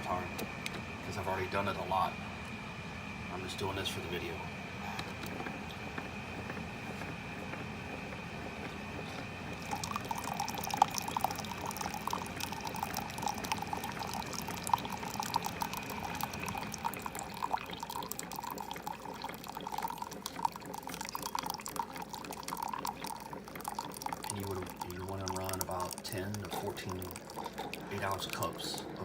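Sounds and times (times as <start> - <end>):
coffee maker high whine: 0.0 - 29.0
liquid trickling and splashing: 8.9 - 29.0.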